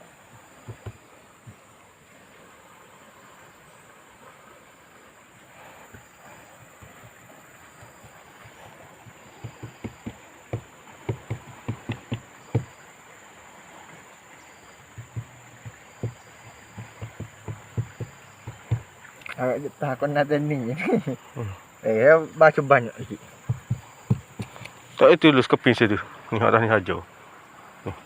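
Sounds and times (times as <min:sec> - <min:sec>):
light knocks and taps on fibreglass: 0:00.3 - 0:01.6, 0:05.9 - 0:12.8, 0:14.8 - 0:19.4, 0:23.0 - 0:25.0.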